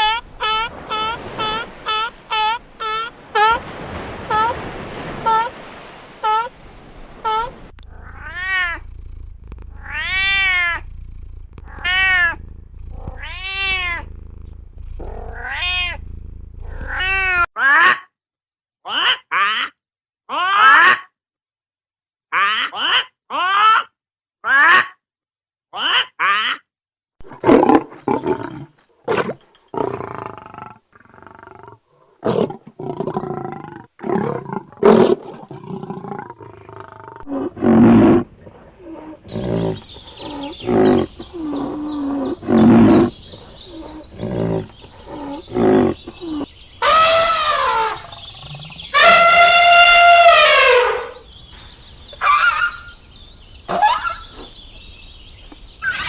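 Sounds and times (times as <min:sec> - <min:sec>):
long pitched animal calls: 0:07.2 - 0:17.9, 0:37.2 - 0:53.1.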